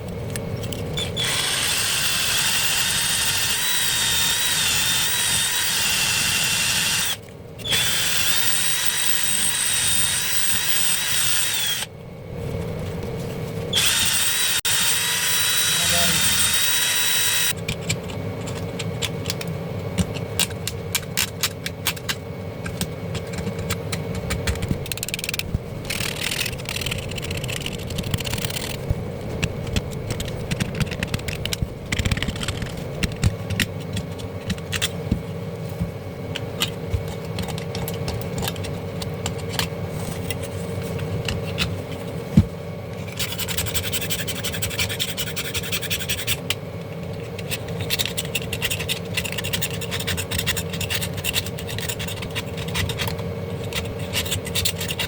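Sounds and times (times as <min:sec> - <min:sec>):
tools scraping and clicking: 0:00.0 - 0:05.6, 0:13.8 - 0:42.0, 0:43.0 - 0:55.0
steady low hum: 0:00.0 - 0:55.0
small electric drill running: 0:01.0 - 0:11.9, 0:13.7 - 0:17.6, 0:24.8 - 0:28.9.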